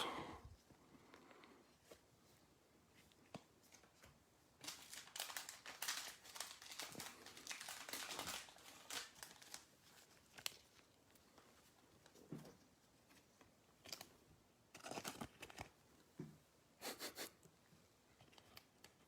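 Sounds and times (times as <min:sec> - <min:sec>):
foil wrapper crinkling and tearing: 0:04.6 - 0:10.8.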